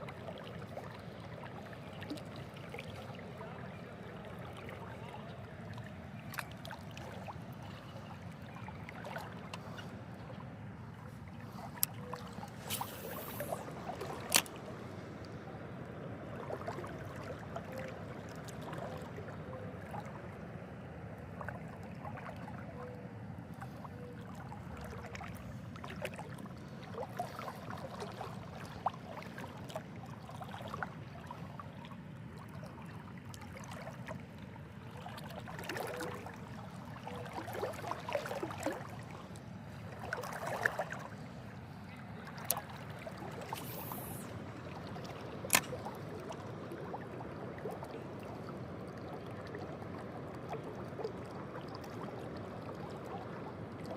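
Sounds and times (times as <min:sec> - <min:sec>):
river water sloshing and trickling: 0:00.0 - 0:53.9
small splashes and knocks: 0:11.6 - 0:14.8, 0:34.9 - 0:39.2, 0:42.2 - 0:44.0, 0:44.7 - 0:47.0.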